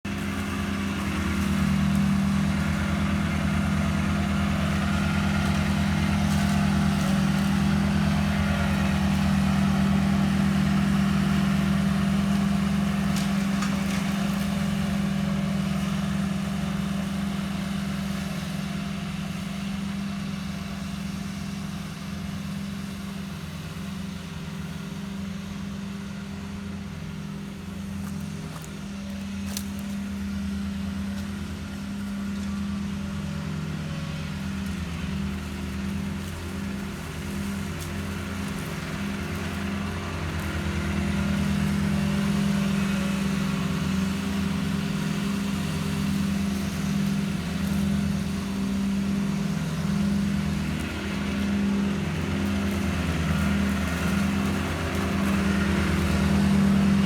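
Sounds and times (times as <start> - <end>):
ride-on mower engine running: 0.0 - 57.0.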